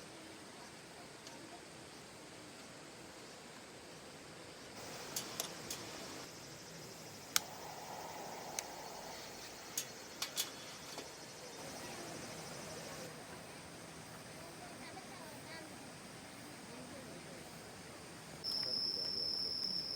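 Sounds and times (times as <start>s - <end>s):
faint high hiss: 0.1s - 19.9s
sharp clicks and snaps: 7.3s - 11.1s.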